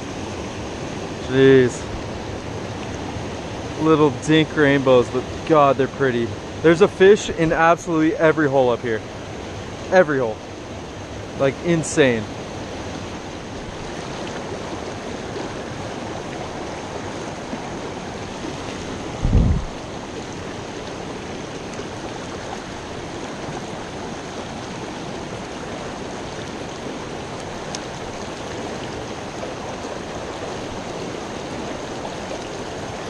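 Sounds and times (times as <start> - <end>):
creek waterfalls rushing: 0.0 - 33.0
low thump: 19.2 - 19.8.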